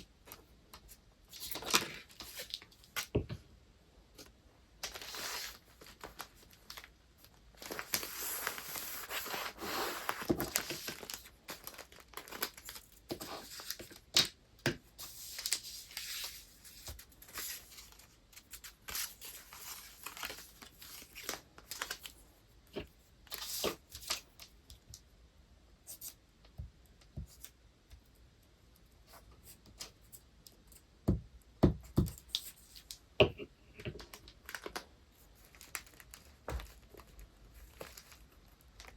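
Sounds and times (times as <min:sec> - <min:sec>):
paper crinkling: 0:04.2 - 0:14.0, 0:15.0 - 0:22.2, 0:33.9 - 0:38.9
paper rustling and tearing: 0:04.8 - 0:06.9, 0:07.6 - 0:14.0.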